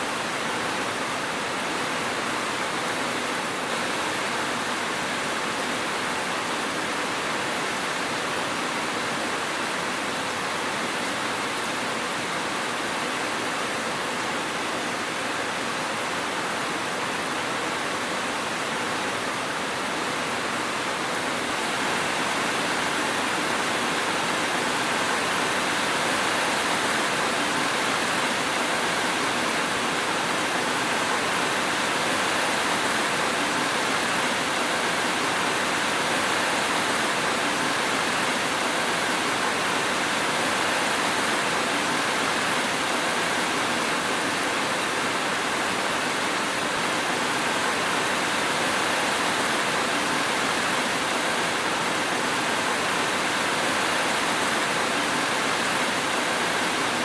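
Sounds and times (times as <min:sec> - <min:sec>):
heavy rain hiss: 0:00.0 - 0:57.0.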